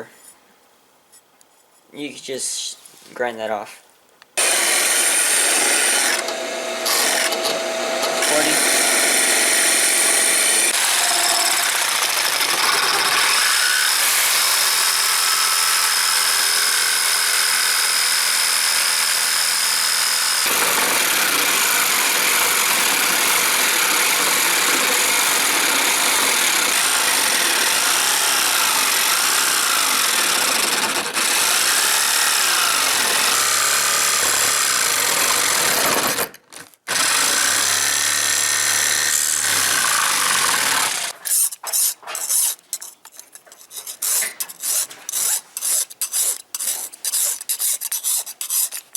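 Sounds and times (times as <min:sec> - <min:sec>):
power tool grinding metal: 0:04.4 - 0:36.3, 0:36.9 - 0:41.2.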